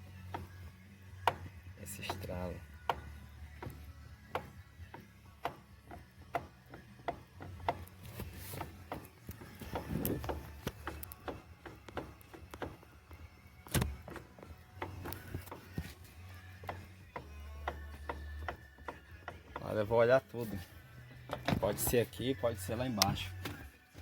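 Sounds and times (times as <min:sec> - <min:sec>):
steering column knock: 0:02.9 - 0:07.9, 0:08.6 - 0:12.8, 0:16.6 - 0:19.9
steering column clicking: 0:02.9 - 0:12.9, 0:13.7 - 0:19.8.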